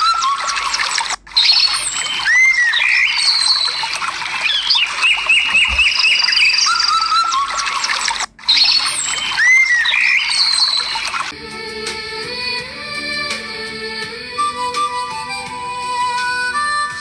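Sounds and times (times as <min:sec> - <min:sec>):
birds calling and singing: 0:00.0 - 0:11.3
repeated bird chirps: 0:00.0 - 0:11.3.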